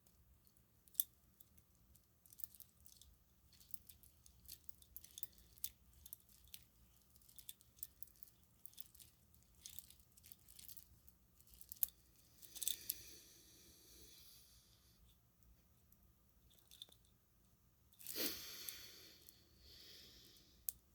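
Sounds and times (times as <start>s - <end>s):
string lights clicking and rubbing: 2.3s - 12.8s.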